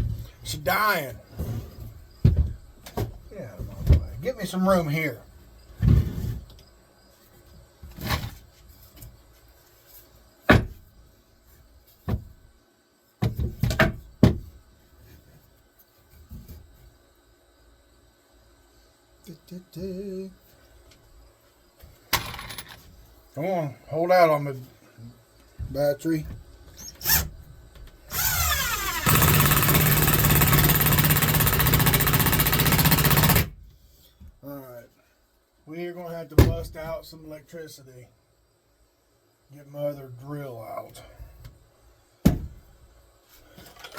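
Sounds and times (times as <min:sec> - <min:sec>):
cordless drill bursts: 0:28.1 - 0:33.5.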